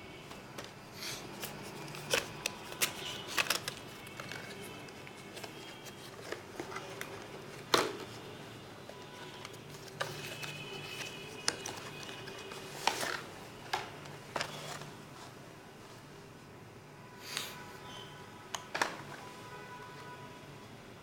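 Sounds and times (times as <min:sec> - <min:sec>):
cardboard and plastic packaging handled: 0:00.3 - 0:16.1.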